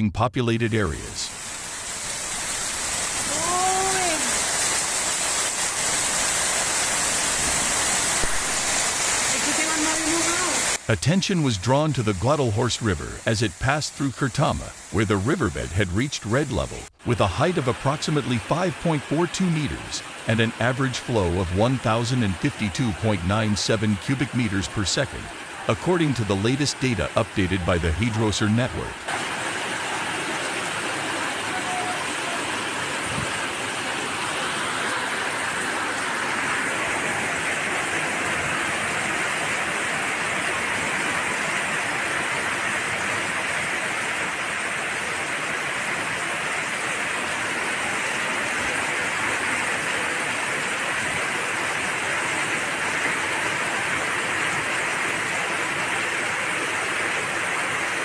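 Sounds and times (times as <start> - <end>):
rushing water: 0.8 - 58.0.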